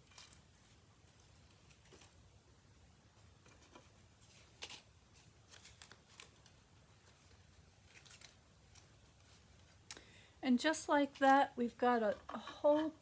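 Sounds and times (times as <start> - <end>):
paper rustling and clicks: 3.4 - 9.3.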